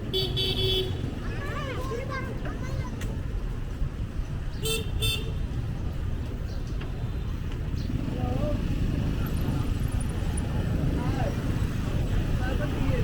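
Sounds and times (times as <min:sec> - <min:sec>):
street traffic rumble: 0:00.0 - 0:13.0
vehicle horn beeps: 0:04.6 - 0:05.4.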